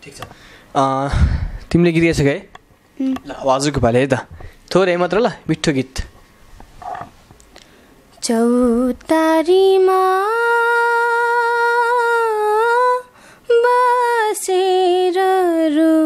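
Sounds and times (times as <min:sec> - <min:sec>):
person singing unaccompanied: 0:08.2 - 0:16.0.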